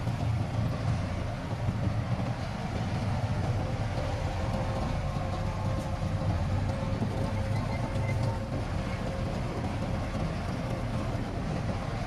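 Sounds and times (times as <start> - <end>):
heavy diesel machinery rumbling: 0.0 - 12.0.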